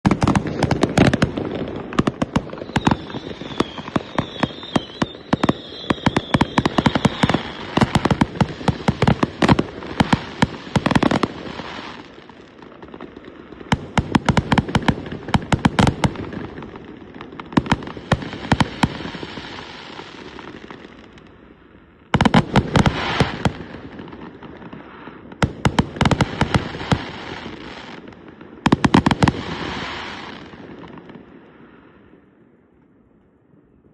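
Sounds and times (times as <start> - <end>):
firework bangs and crackling: 0.0 - 32.7
warbling firework whistle: 2.2 - 12.1.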